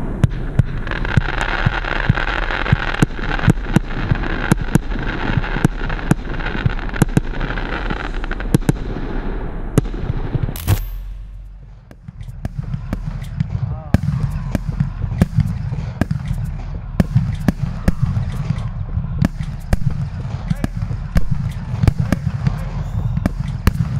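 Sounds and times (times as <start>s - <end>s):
firework crackling hiss: 0.0s - 10.8s, 11.4s - 23.9s
firework loud bang: 8.4s - 23.9s
firework launch pops: 9.8s - 23.9s.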